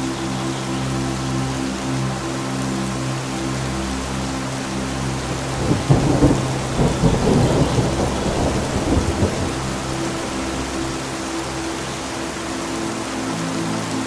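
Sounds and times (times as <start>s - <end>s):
low music drone: 0.0s - 14.0s
rain hissing: 4.4s - 14.0s
thunder rumbling: 5.3s - 11.0s.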